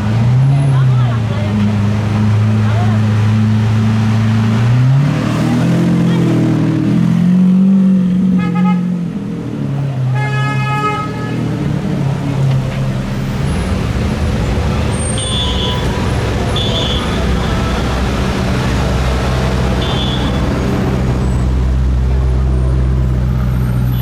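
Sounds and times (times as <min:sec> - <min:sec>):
car horn tooting: 0:08.4 - 0:09.0, 0:10.1 - 0:11.6, 0:14.9 - 0:21.5
car engine running: 0:11.5 - 0:23.8.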